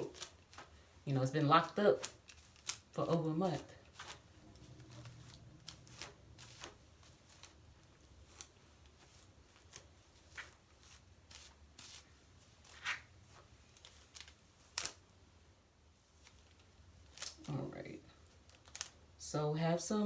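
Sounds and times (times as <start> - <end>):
brush swishing through wet hair: 0.0 - 15.0.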